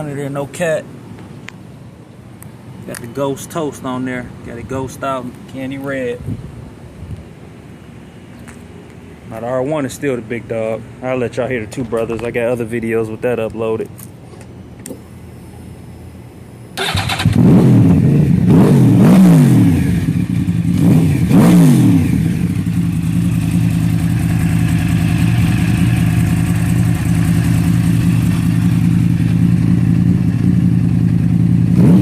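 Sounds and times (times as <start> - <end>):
motorcycle engine revving and idling: 16.8 - 32.0.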